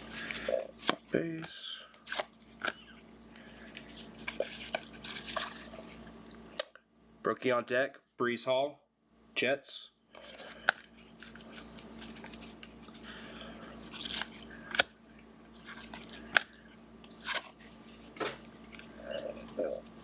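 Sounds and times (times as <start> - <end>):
cards and wrappers rustling: 0.0 - 6.1, 10.2 - 20.0.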